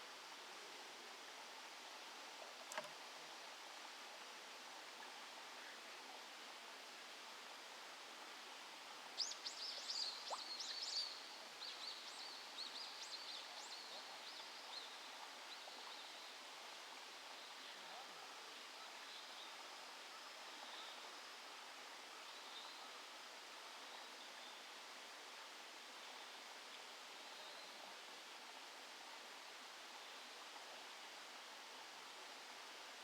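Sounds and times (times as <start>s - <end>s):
outdoor hiss: 0.0s - 33.0s.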